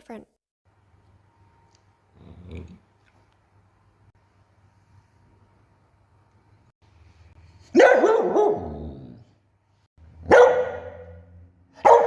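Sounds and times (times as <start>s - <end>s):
dog barking: 7.7s - 8.8s, 10.2s - 12.0s.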